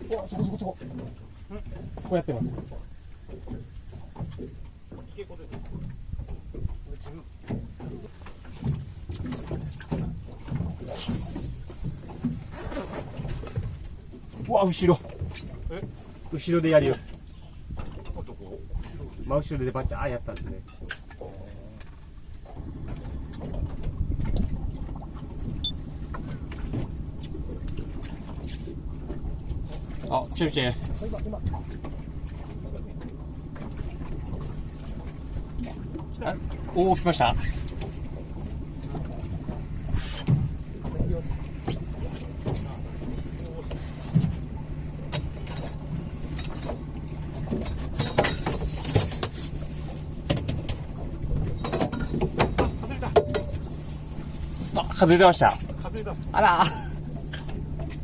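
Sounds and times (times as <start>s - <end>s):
boat engine idling: 0.0s - 58.0s
rough water against hull: 0.0s - 58.0s
light clicks and knocks: 40.2s - 54.3s.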